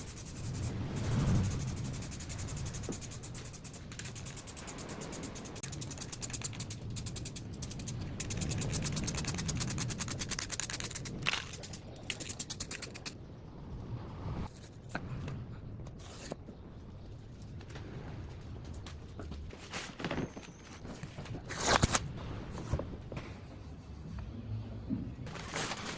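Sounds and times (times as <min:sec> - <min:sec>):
rhythmic scraping on hard surface: 0:00.0 - 0:13.2.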